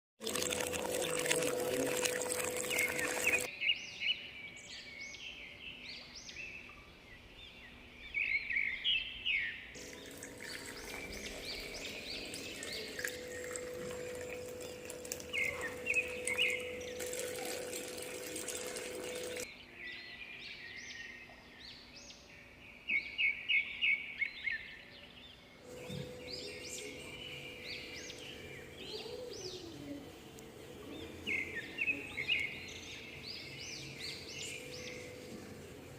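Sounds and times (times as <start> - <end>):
small birds chirping: 1.2 - 35.9
faint steady hum: 9.8 - 19.5.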